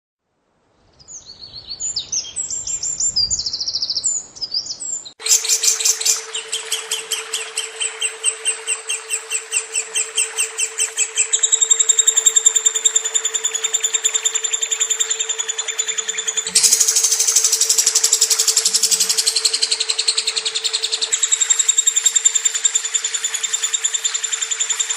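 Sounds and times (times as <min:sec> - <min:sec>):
bird chirps: 0:00.9 - 0:24.9
bird chattering trill: 0:02.0 - 0:24.9
steady low hum: 0:05.3 - 0:24.3.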